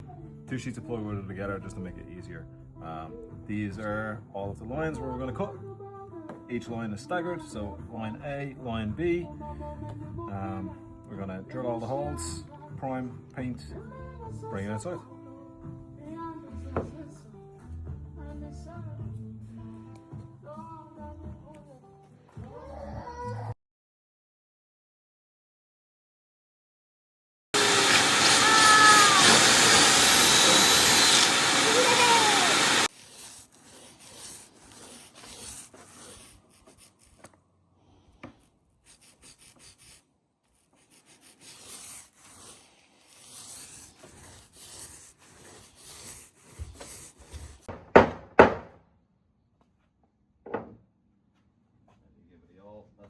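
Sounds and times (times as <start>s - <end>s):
power saw cutting plywood: 27.6s - 36.3s
scraping and rubbing on wood: 27.6s - 37.3s, 40.6s - 47.7s
sharp wooden knocks: 47.7s - 48.8s.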